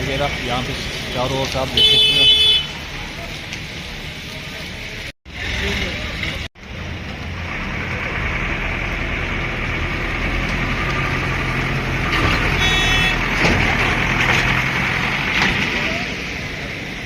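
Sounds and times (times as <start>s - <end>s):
vehicle engines passing: 0.0s - 17.0s
high-pitched horn toot: 12.6s - 13.2s.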